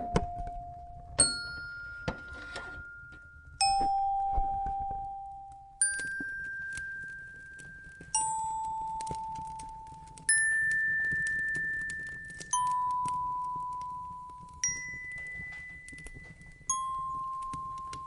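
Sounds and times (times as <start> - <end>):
fireplace crackling and popping: 0.1 - 18.0
bell-like chime notes: 1.2 - 9.6.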